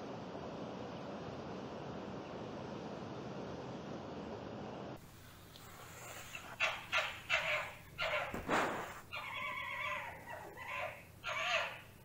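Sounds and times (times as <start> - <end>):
fox yipping and whining: 6.0 - 12.0.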